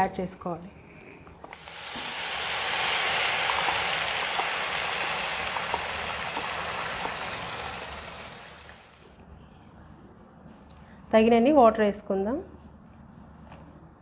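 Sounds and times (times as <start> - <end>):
gravy sizzling in hot oil: 1.6 - 9.1.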